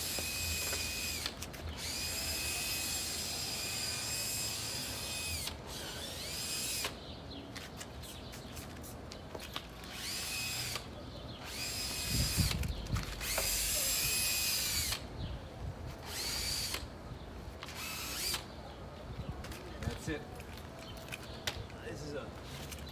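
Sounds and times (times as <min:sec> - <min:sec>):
small electric motor whirring: 0:00.0 - 0:07.0, 0:09.8 - 0:15.1, 0:15.9 - 0:16.9, 0:17.6 - 0:18.5.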